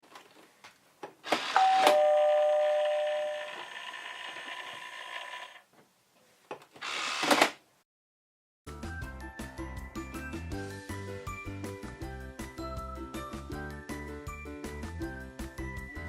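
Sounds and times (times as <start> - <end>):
ding-dong doorbell chime: 1.6 - 3.6.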